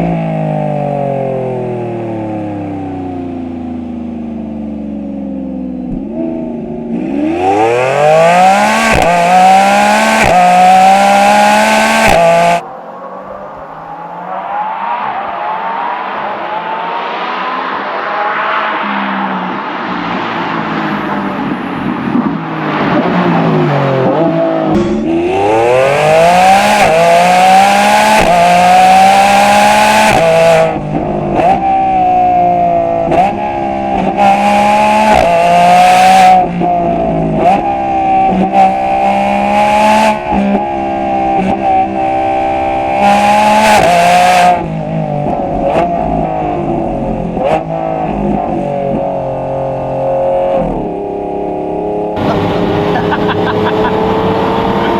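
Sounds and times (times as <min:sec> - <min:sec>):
sports car engine revving: 0:00.0 - 0:14.3, 0:15.4 - 0:54.9.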